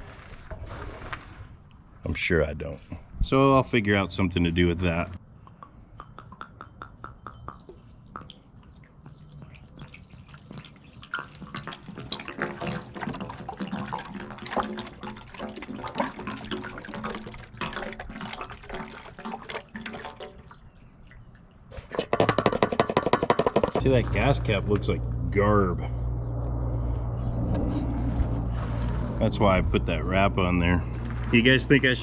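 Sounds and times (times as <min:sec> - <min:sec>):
liquid pouring and gurgling: 0:07.5 - 0:22.5.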